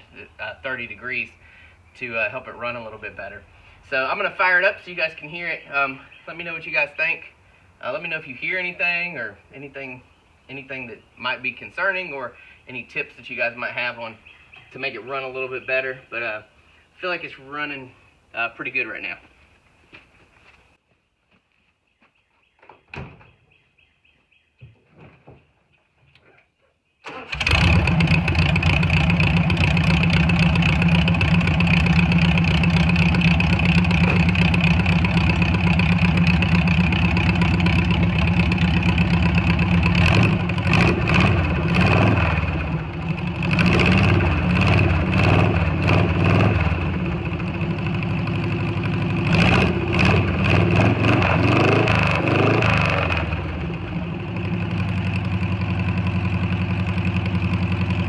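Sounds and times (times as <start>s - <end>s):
car engine starting and running: 27.0s - 58.0s.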